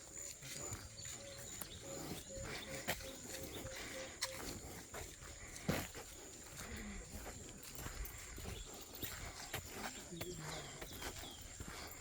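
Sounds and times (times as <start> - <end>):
footsteps on soft ground: 0.0 - 12.0.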